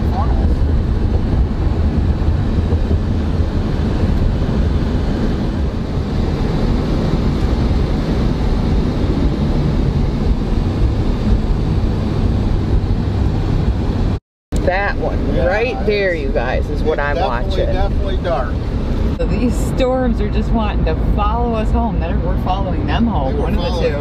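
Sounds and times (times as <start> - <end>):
car road and wind noise: 0.0 - 24.0.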